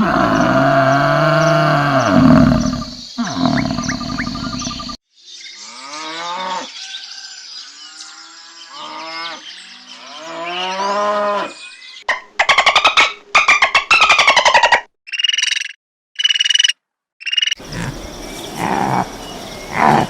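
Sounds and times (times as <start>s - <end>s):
cattle mooing: 0.0s - 4.7s, 17.6s - 20.0s
animal call: 0.0s - 5.0s, 17.6s - 20.0s.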